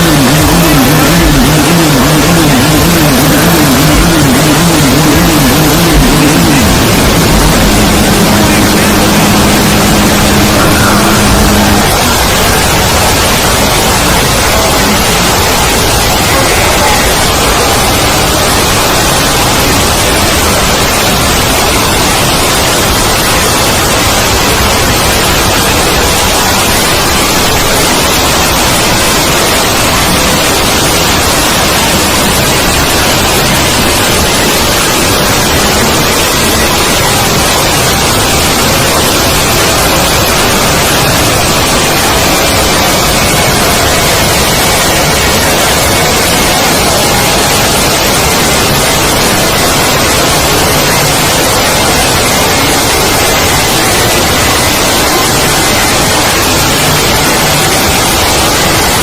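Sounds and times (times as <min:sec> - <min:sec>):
faint steady tones: 0:00.0 - 0:19.2
static hiss: 0:00.0 - 0:59.0.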